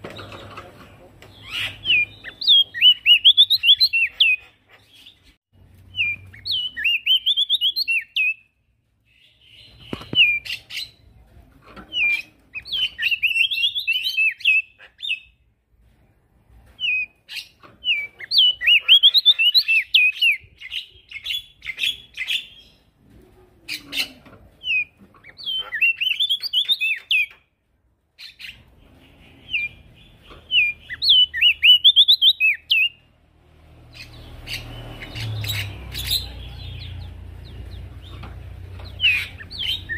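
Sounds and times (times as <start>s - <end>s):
bird chattering chirps: 0.2s - 8.5s, 16.8s - 22.8s, 23.7s - 27.4s, 28.2s - 33.0s, 33.9s - 39.9s.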